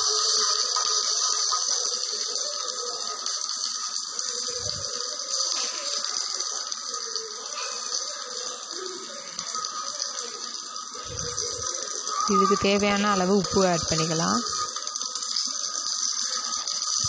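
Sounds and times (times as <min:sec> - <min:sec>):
food sizzling in oil: 0:00.0 - 0:17.0.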